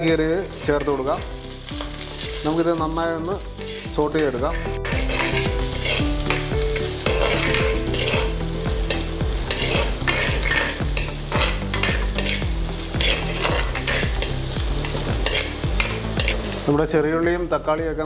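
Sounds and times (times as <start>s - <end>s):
food sizzling in hot oil: 0.0s - 18.0s
metal spoon scraping a pot: 3.6s - 16.6s.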